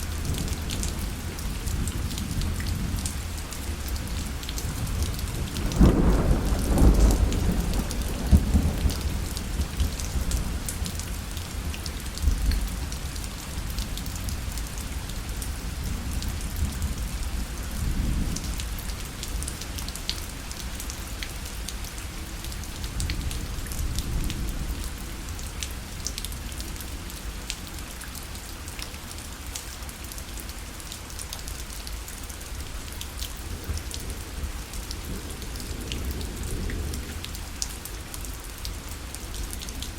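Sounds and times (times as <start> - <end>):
rain on a parasol: 0.0 - 39.9
thunder rolling: 4.9 - 9.8.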